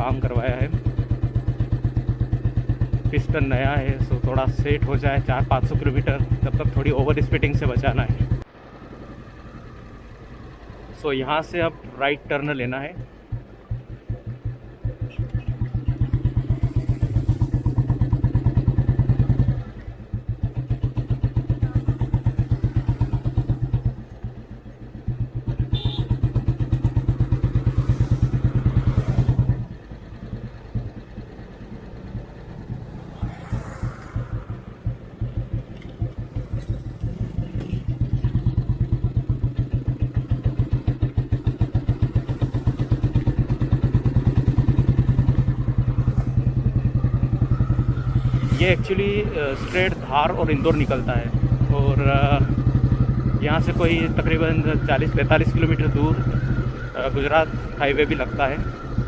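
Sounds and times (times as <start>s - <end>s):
motorcycle engine thumping: 12.9s - 48.6s.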